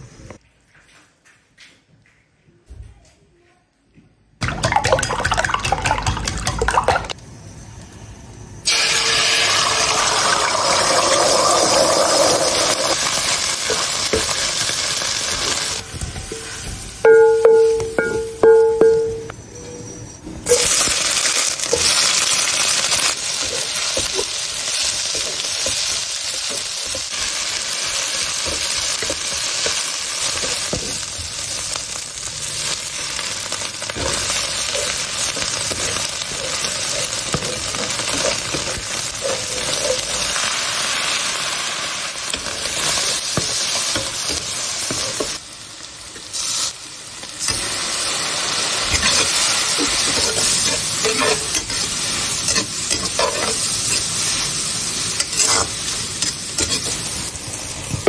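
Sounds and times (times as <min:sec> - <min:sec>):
food sizzling in a wok: 0:07.1 - 0:58.0
metal clinking on dish: 0:17.1 - 0:19.4
metal ladle scraping wok: 0:48.8 - 0:54.3.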